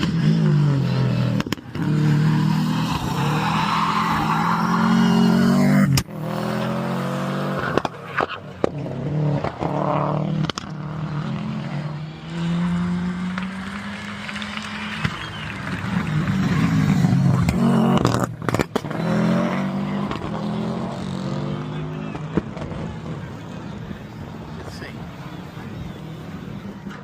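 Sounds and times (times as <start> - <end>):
rally car engines accelerating: 0.0 - 27.0.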